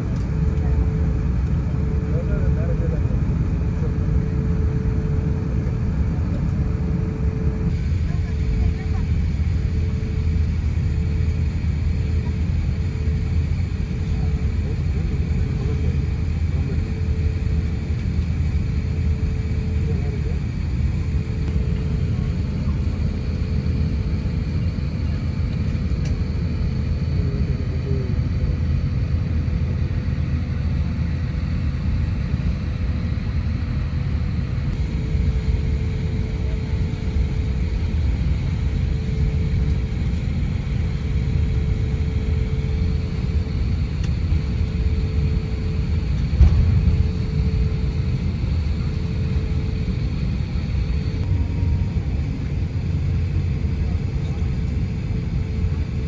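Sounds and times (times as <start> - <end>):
airplane cabin engine rumble: 0.0 - 56.0
thump: 46.4 - 47.2.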